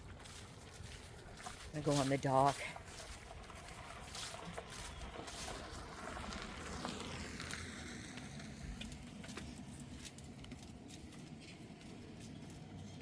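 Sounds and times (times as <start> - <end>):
distant vehicle passing: 0.0 - 13.0.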